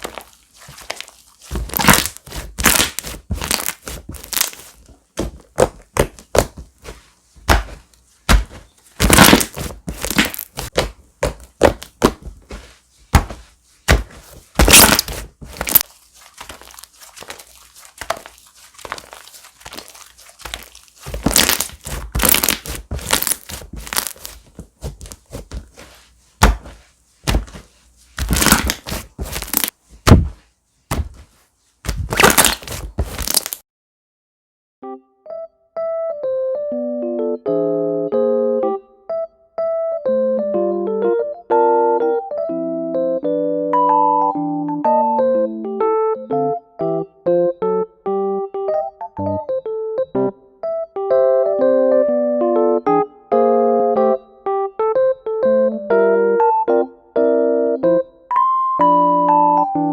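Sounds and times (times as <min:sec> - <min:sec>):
slime popping and crackling: 0:00.0 - 0:04.7, 0:08.3 - 0:10.8, 0:14.6 - 0:24.4, 0:28.2 - 0:30.2, 0:32.0 - 0:33.6.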